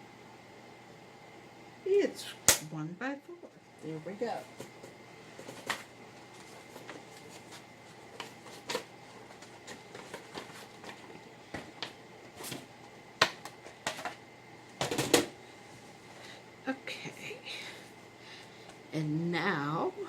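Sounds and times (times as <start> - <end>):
paper rustling: 5.3 - 12.6.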